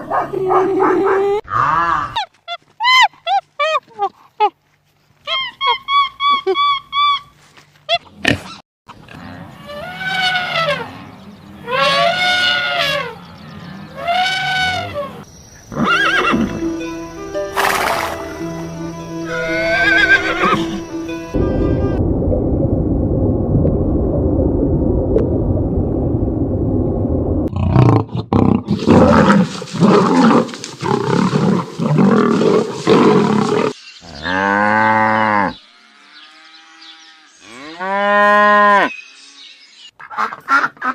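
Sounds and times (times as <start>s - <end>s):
pitched animal calls: 7.9s - 16.6s
background music: 15.8s - 22.0s.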